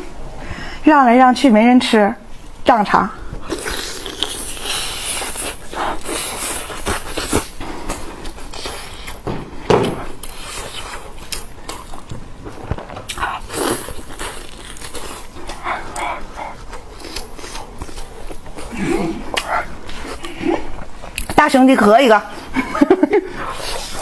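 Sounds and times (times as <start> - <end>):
person chewing food: 3.4 - 21.4.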